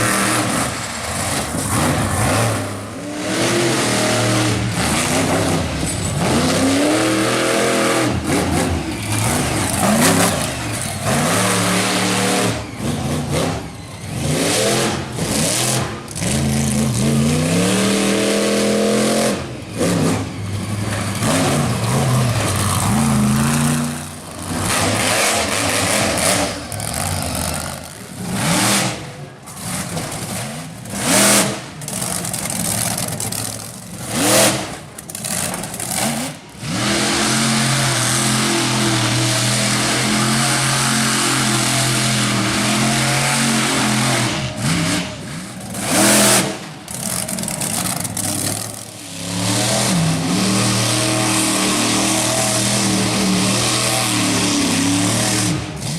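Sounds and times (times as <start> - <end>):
monster truck engine revving: 0.0 - 55.9.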